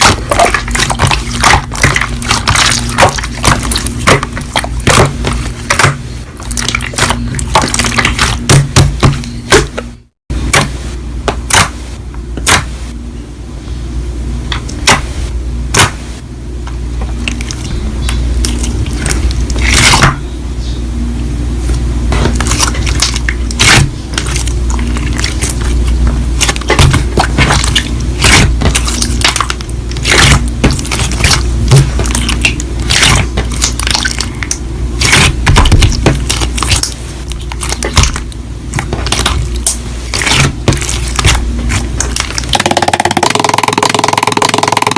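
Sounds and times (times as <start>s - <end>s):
slime squished by hand: 22.2s - 44.9s.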